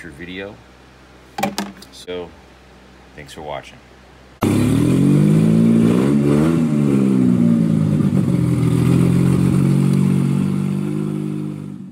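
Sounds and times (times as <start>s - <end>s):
car engine revving and idling: 4.4s - 11.9s.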